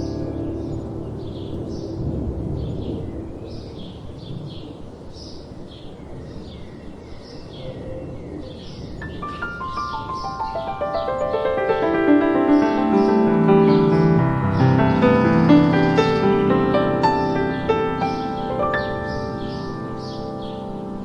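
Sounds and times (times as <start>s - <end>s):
soft music: 0.0s - 4.5s, 9.0s - 21.0s
piano notes: 0.0s - 4.6s, 9.0s - 21.0s
wind rushing: 0.0s - 5.7s, 8.9s - 21.0s
birds chirping: 0.0s - 21.0s.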